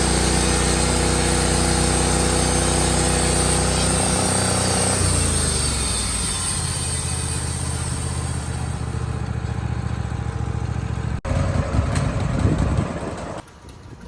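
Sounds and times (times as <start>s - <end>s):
band sawmill cutting wood: 0.0s - 13.4s.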